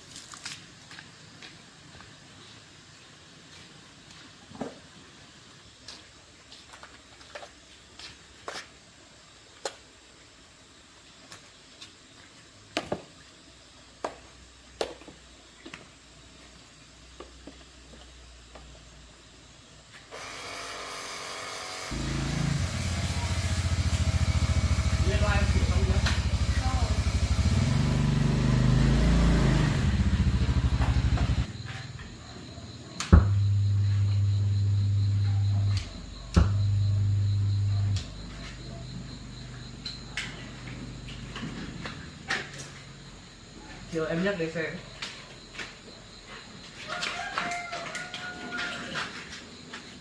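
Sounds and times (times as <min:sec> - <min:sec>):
motorcycle engine running: 0:21.9 - 0:32.0, 0:33.2 - 0:39.7
faint low hum: 0:30.7 - 0:42.8.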